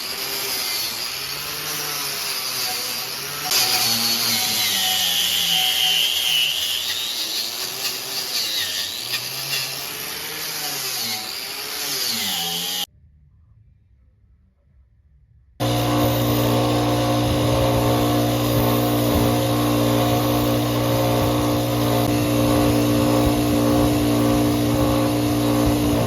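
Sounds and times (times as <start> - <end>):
electric power tool motor: 0.0 - 12.9, 15.6 - 26.0.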